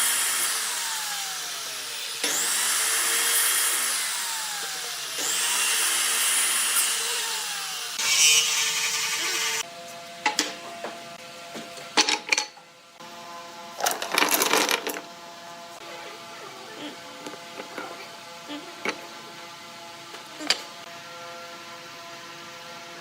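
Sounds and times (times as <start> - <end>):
power tool cutting wood: 0.0 - 9.7.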